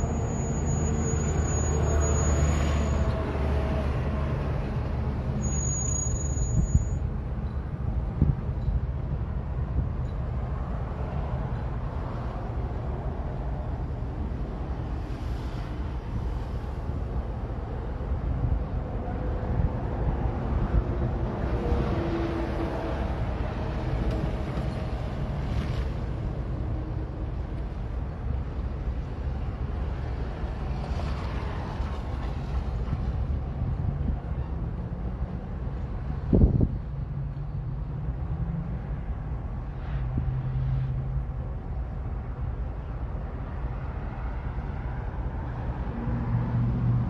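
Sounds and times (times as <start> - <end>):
diesel engines rumbling: 0.0 - 47.0
wind buffeting microphone: 36.0 - 37.0.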